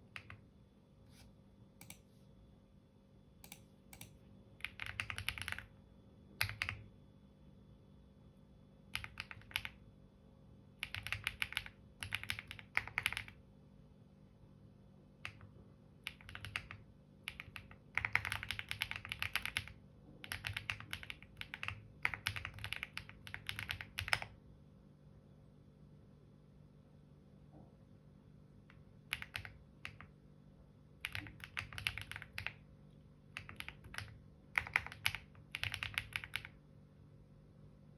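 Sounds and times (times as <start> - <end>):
keyboard typing: 0.0 - 0.4, 1.8 - 2.0, 3.4 - 5.7, 6.4 - 6.8, 8.9 - 9.8, 10.8 - 13.4, 15.2 - 24.4, 28.7 - 30.2, 31.0 - 32.6, 33.3 - 36.6.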